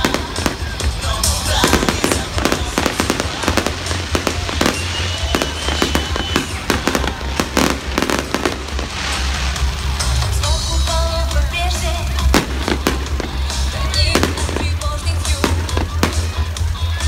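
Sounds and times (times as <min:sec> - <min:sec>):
fireworks bangs and crackles: 0:00.0 - 0:17.0
music with steady bass: 0:00.0 - 0:17.0
thin high whistle: 0:04.6 - 0:06.8.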